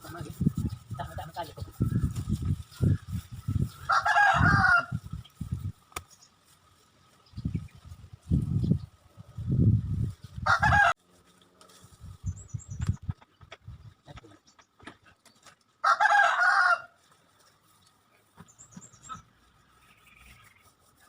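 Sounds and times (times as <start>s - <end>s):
rooster crowing: 3.8s - 5.0s, 10.4s - 11.0s, 15.8s - 17.0s.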